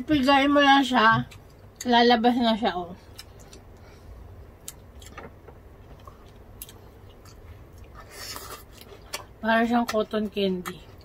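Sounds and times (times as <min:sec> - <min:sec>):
chewing grapes: 0:04.6 - 0:11.0.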